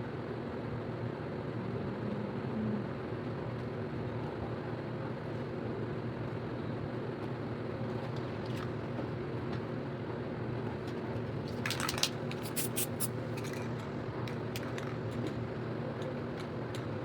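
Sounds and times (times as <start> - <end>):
spray paint can hissing: 12.4 - 13.1.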